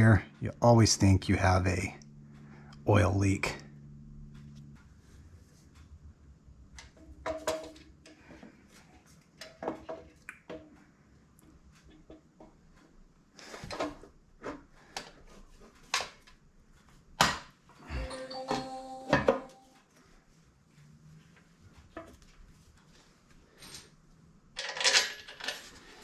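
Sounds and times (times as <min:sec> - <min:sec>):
metal tools clinking: 0:24.6 - 0:26.0.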